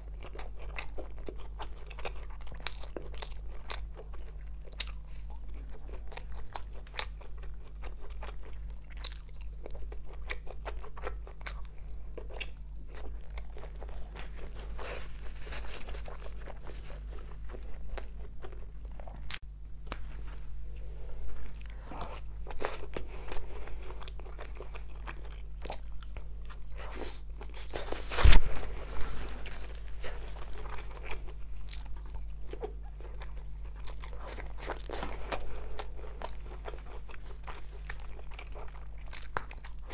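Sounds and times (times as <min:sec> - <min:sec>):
biting and chewing meat: 0:00.0 - 0:19.4, 0:29.4 - 0:39.9.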